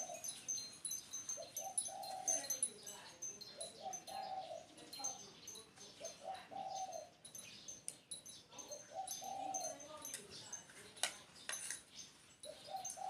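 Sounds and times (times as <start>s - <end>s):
dove cooing: 0.0s - 0.6s, 1.3s - 2.8s, 3.4s - 7.3s, 8.5s - 10.0s, 12.4s - 13.0s
small birds chirping: 0.0s - 13.0s.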